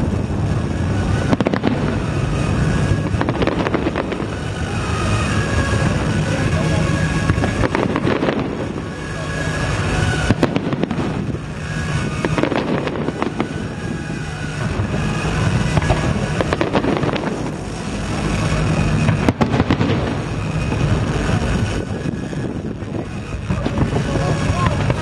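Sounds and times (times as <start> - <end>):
fireworks bangs and crackling: 0.0 - 25.0
steady low hum: 0.0 - 25.0.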